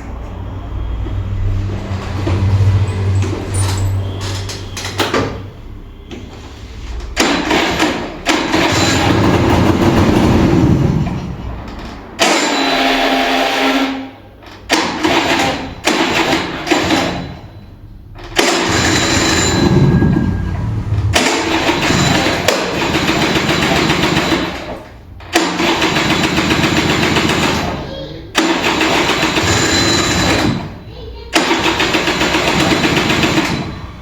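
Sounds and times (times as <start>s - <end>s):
scooter starter cranking engine: 7.0s - 13.3s, 18.1s - 34.0s.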